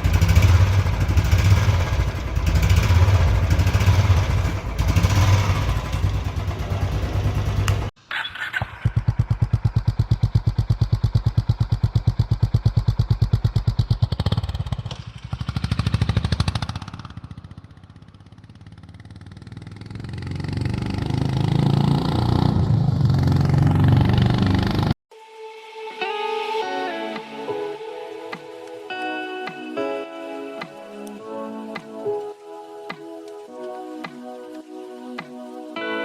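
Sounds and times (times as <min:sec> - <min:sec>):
motorcycle exhaust idling and revving: 0:00.0 - 0:25.0.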